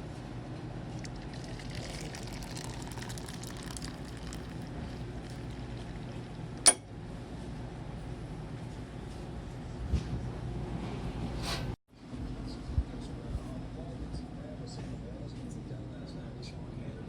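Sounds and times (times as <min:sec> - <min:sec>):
steady background hum: 0:00.0 - 0:17.0
coffee pouring into a cup: 0:01.0 - 0:06.6.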